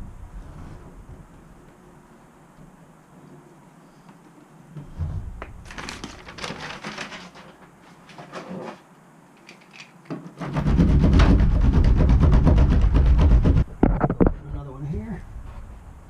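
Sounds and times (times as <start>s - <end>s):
rustling and crinkling of mat: 4.8s - 8.9s
low rumble with fast rattle: 10.4s - 15.8s.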